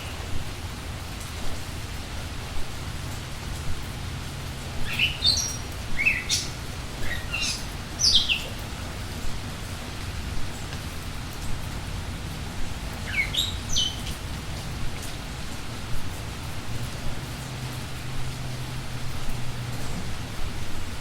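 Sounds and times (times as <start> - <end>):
steady rain: 0.0 - 21.0
songbird singing: 4.8 - 8.9, 12.9 - 14.2.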